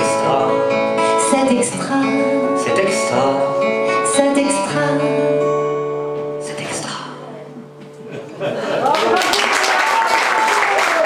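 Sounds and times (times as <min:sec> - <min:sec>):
acoustic guitar strumming chords: 0:00.0 - 0:08.5.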